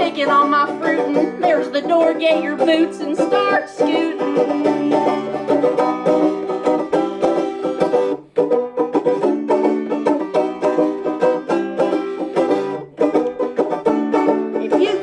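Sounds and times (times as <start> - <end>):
person singing: 0.0 - 6.9, 14.1 - 15.0
bluegrass band playing: 0.0 - 15.0
fast-picked banjo: 0.0 - 15.0.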